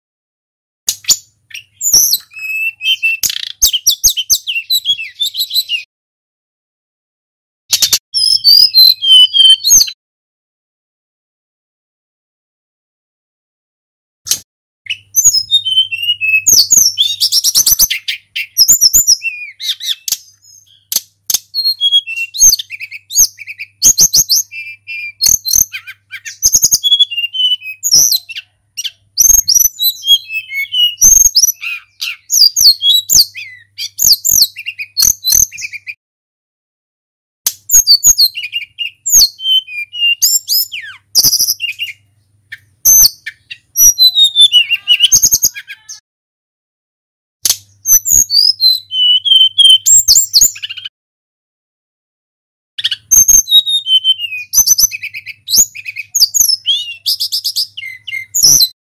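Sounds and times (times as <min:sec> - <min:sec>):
bird singing chirps and whistles: 0:00.9 - 0:05.9, 0:07.7 - 0:10.0, 0:14.3 - 0:36.0, 0:37.5 - 0:46.0, 0:47.5 - 0:50.9, 0:52.8 - 0:58.8.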